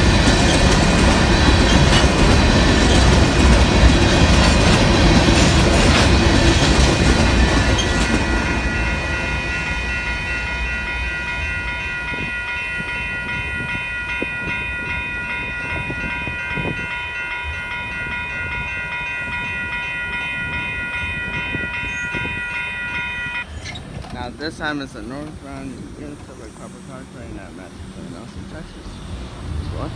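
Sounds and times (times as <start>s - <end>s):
railroad crossing bell ringing: 0.0s - 23.8s
freight train wheels clattering: 0.0s - 28.8s.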